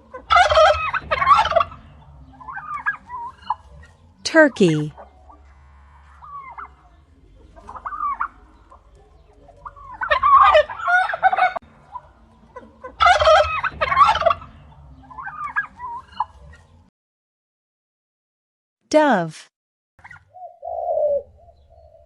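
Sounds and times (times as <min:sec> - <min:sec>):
turkey gobbling: 0:00.1 - 0:03.7, 0:06.2 - 0:06.8, 0:07.5 - 0:16.4.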